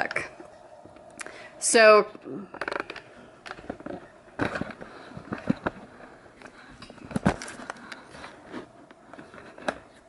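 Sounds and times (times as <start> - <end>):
phone handling rustle: 2.6 - 10.0.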